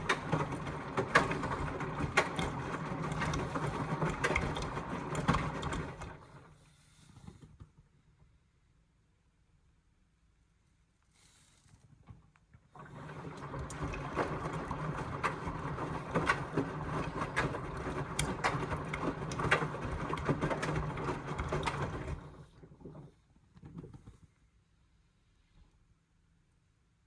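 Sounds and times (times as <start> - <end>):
washing machine motor hum: 0.0 - 6.6, 12.7 - 23.2.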